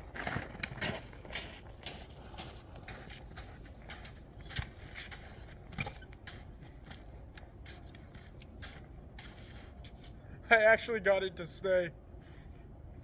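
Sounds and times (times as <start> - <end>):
crunches and knocks in frozen snow: 0.0 - 10.2.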